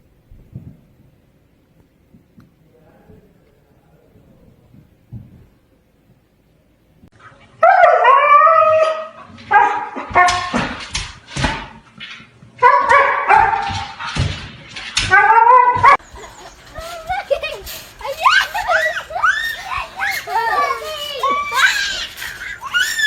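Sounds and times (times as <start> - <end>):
dog howling: 7.6 - 9.8, 15.1 - 16.0, 18.3 - 23.0
dog barking and yipping: 7.6 - 10.6, 12.6 - 14.2, 15.0 - 23.0.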